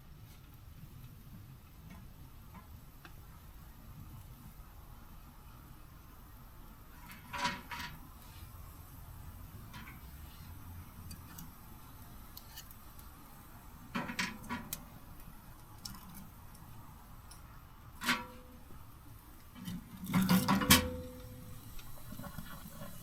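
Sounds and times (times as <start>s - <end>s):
metal camping gear clanking: 7.0s - 8.1s, 9.6s - 11.6s, 13.8s - 15.1s, 15.8s - 18.8s, 19.5s - 23.0s.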